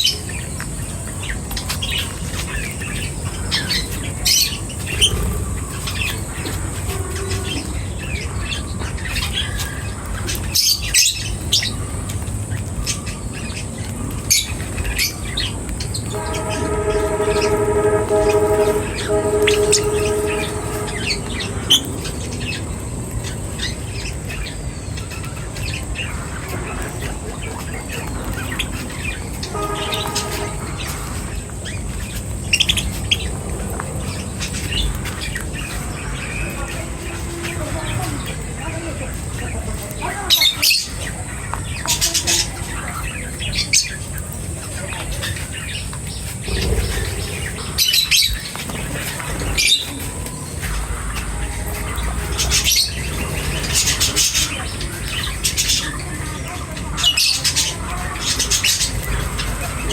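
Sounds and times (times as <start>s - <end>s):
birds chirping: 0.0s - 59.9s
steady pitched tone: 16.1s - 21.8s.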